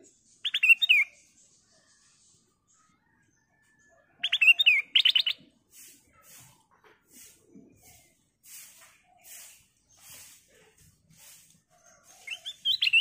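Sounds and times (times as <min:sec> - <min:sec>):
bird chirping and warbling: 0:00.0 - 0:06.6, 0:07.6 - 0:13.0.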